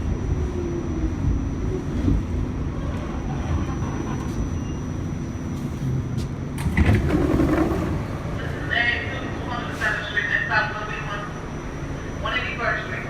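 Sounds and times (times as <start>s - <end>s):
subway wheels rumbling on rail: 0.0s - 13.0s.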